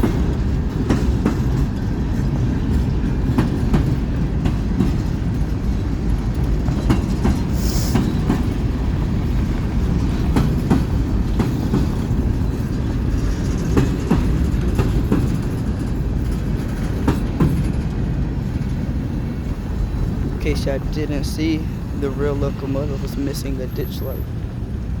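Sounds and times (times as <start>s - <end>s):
wheels clicking over rail joints: 0.0s - 20.4s
train cars rumbling: 0.0s - 25.0s
high hiss or squeal: 7.6s - 8.0s.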